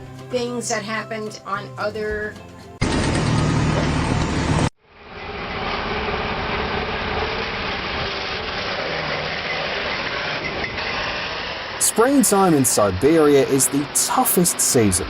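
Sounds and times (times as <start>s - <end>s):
vehicle engine running: 2.8s - 10.4s.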